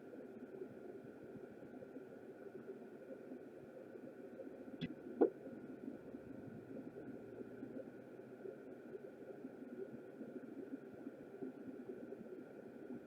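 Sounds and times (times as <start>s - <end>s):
steady low hum: 4.6s - 11.3s.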